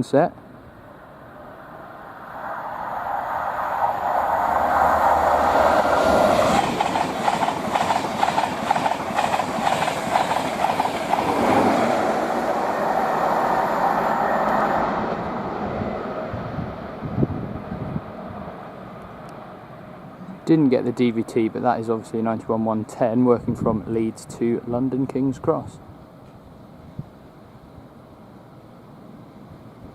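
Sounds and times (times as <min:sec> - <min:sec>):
train passing at speed: 0:00.4 - 0:22.2, 0:25.3 - 0:29.9
rhythmic clatter of wheels: 0:06.4 - 0:11.4.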